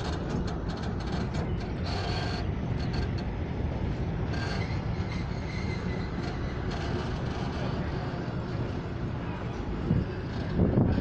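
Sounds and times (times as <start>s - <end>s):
train wheels rumbling on rails: 0.0s - 11.0s
high-pitched wheel squeals: 4.3s - 7.2s.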